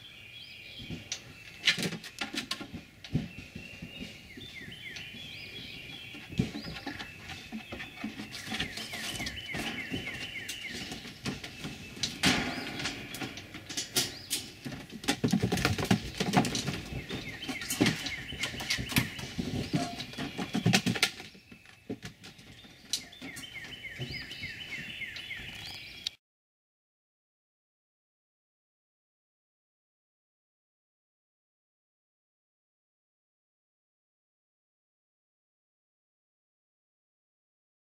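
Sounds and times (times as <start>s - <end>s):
songbird chirping: 0.0s - 26.2s
knocks and rattles on wire mesh: 6.1s - 24.2s.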